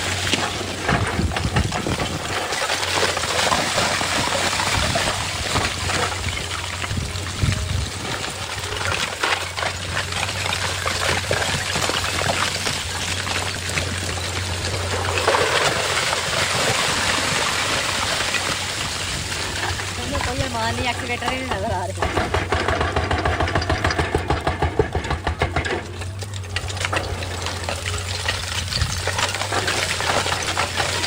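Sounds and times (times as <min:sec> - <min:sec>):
excavator engine hum: 0:00.0 - 0:31.0
rock and gravel clattering down: 0:00.0 - 0:31.0.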